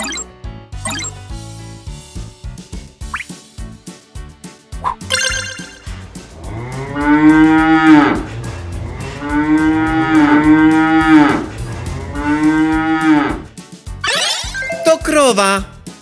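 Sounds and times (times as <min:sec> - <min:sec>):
cow mooing: 0:06.5 - 0:08.3, 0:09.0 - 0:13.5.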